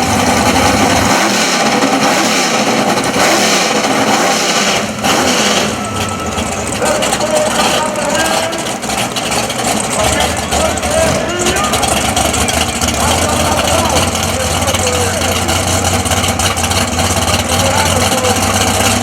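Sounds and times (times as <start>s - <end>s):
car engines running loud: 0.0s - 19.0s
people's voices: 5.2s - 19.0s.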